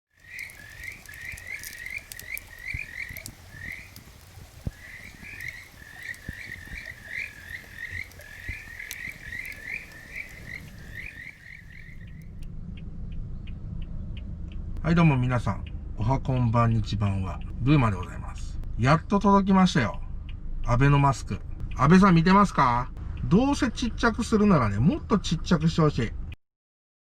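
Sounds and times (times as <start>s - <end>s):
frogs croaking: 0.1s - 12.5s.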